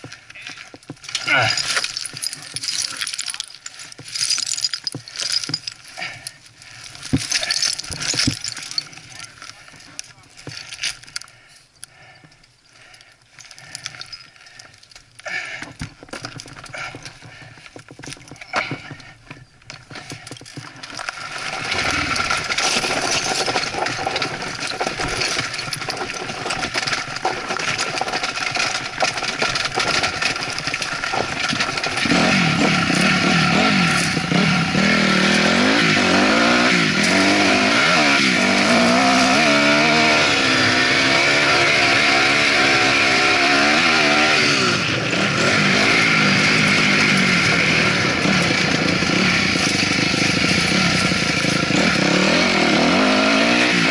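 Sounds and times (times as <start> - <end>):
dirt bike engine revving: 21.2 - 24.8, 31.3 - 53.9.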